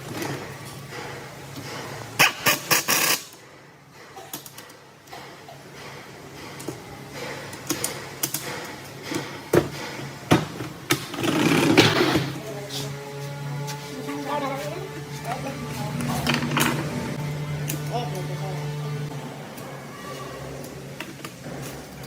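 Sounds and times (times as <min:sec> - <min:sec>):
steady low hum: 0:12.0 - 0:19.6.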